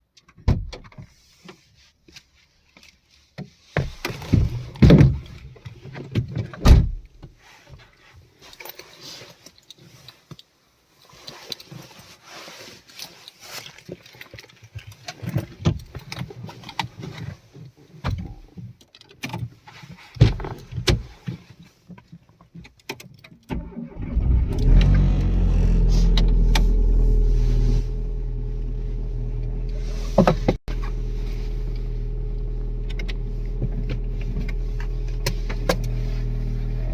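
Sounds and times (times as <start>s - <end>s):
clicks and knocks inside car: 3.4s - 7.3s, 18.0s - 21.5s
car engine idling: 23.6s - 36.9s.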